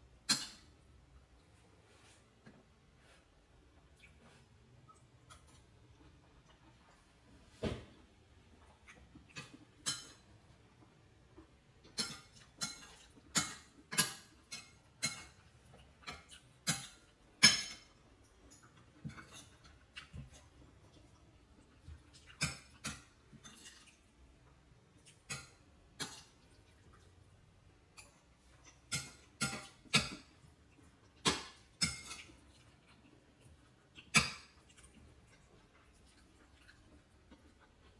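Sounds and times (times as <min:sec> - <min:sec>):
kitchen utensils and dishes clinking: 0:00.3 - 0:00.8, 0:09.4 - 0:10.3, 0:11.9 - 0:20.3, 0:28.0 - 0:30.4, 0:31.2 - 0:32.5, 0:34.1 - 0:34.6.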